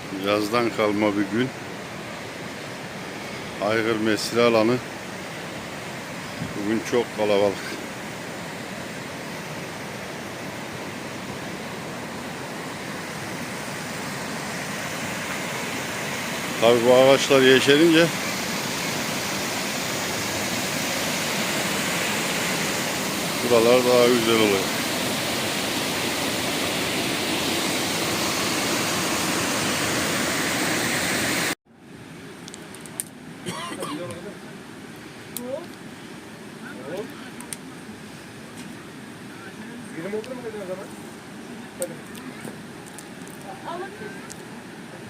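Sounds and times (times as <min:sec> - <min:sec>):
waterfall rushing: 0:00.0 - 0:31.6.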